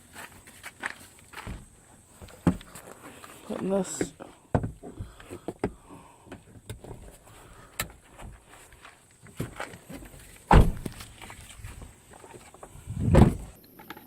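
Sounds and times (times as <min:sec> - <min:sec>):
heavy thud: 0:10.5 - 0:11.0, 0:13.0 - 0:13.5.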